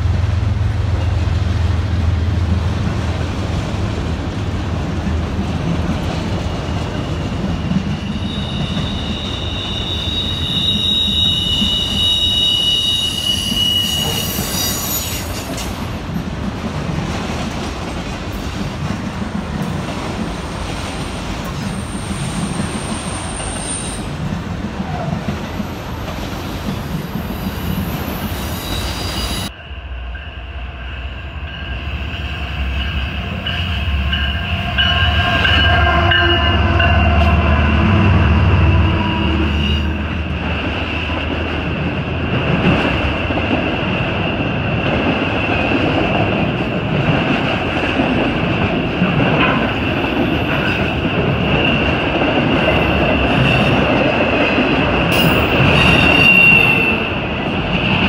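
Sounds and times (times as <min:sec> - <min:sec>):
diesel locomotive engine rumble: 0:00.0 - 0:58.0
freight train rumbling past: 0:00.0 - 0:58.0
high-pitched wheel squeal: 0:07.1 - 0:15.6, 0:27.3 - 0:29.5, 0:38.5 - 0:40.1, 0:55.1 - 0:57.2.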